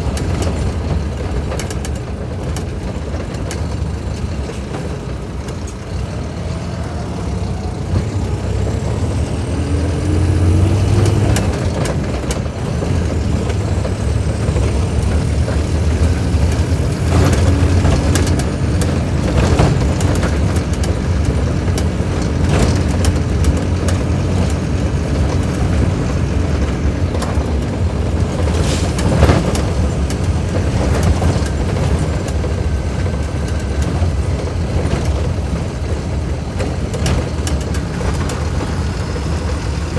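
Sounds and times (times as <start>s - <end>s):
bus diesel engine rumbling: 0.0s - 39.9s
steady whine: 4.8s - 20.5s.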